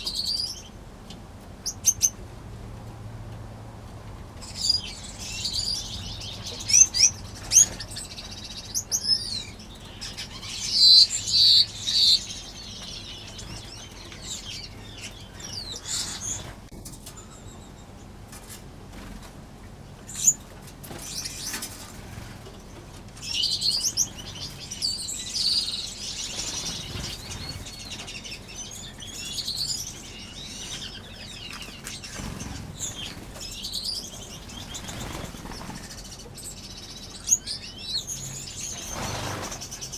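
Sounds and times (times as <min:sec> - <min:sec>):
finches chirping and twittering: 0:00.0 - 0:00.8, 0:01.6 - 0:02.2, 0:04.4 - 0:18.1, 0:20.0 - 0:39.9
bird wing flutters: 0:32.1 - 0:33.5, 0:34.4 - 0:36.0, 0:38.8 - 0:39.8.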